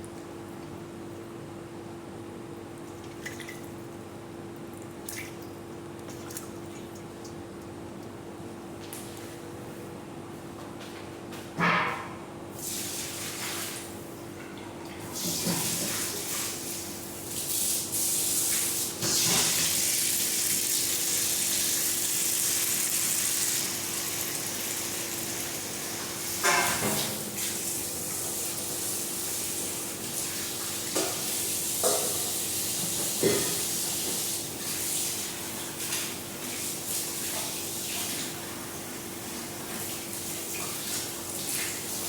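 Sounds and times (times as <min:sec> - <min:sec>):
tap water running into sink: 0:19.0 - 0:27.6.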